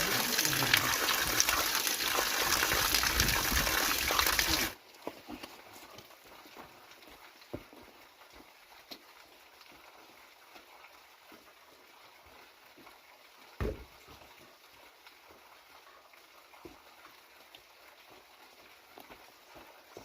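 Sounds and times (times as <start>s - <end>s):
stone thud: 13.6s - 13.9s.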